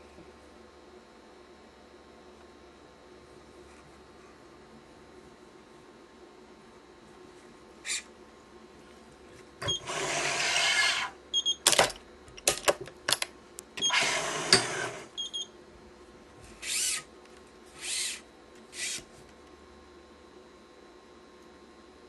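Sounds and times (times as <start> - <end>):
stringing machine motor: 9.6 - 11.1, 13.8 - 15.1.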